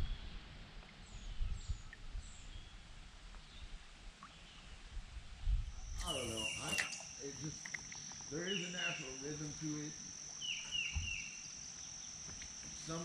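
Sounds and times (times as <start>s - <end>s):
small birds chirping: 5.9s - 13.0s.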